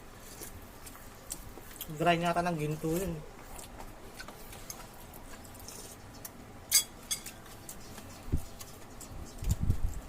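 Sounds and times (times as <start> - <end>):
cutlery clinking against a plate: 6.7 - 7.5.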